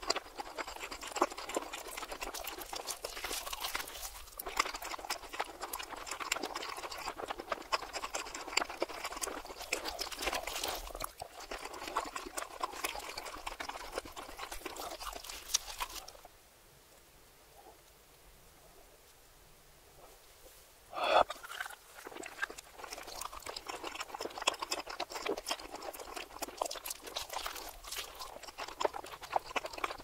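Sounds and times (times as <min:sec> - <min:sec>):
reversed chewing and crunching: 0:00.0 - 0:16.3, 0:21.0 - 0:30.0
faint hiss: 0:16.2 - 0:22.0.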